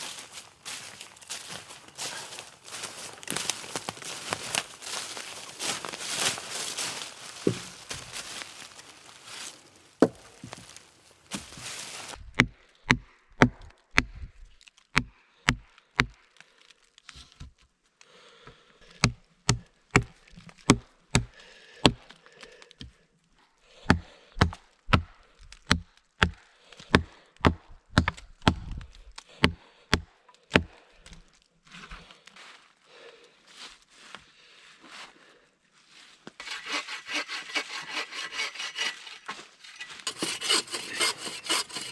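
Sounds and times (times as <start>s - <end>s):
wood chopping strokes: 0.0s - 12.2s, 40.1s - 41.9s.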